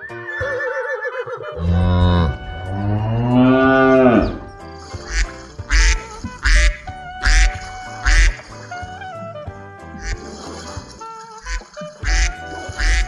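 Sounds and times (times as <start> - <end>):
background music: 0.0 - 13.0
cow mooing: 1.4 - 4.6
duck quacking: 5.0 - 8.9, 10.0 - 10.4, 11.4 - 13.0.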